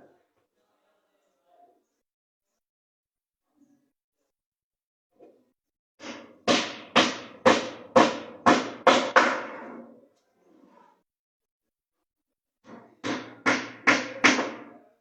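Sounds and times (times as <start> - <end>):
hammer striking wood: 6.0 - 9.8, 12.7 - 14.8.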